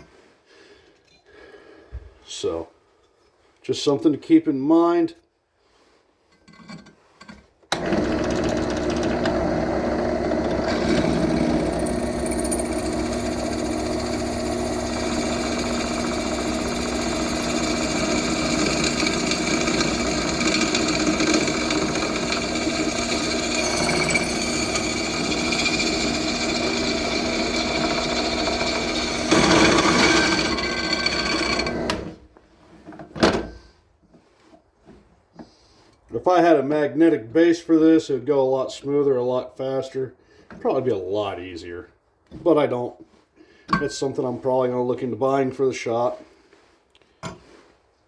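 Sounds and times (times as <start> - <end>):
drill press drilling steel: 7.7 - 32.2.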